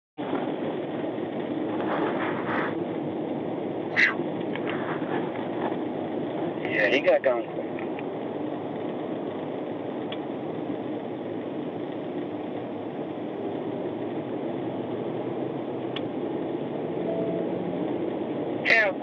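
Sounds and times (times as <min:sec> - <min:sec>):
road noise: 0:00.2 - 0:19.0
car engine running: 0:10.7 - 0:18.7.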